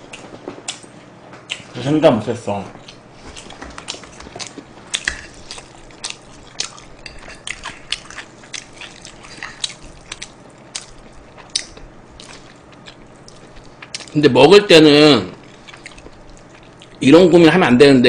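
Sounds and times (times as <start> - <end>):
close chewing and biting: 2.8 - 14.2, 15.4 - 17.0.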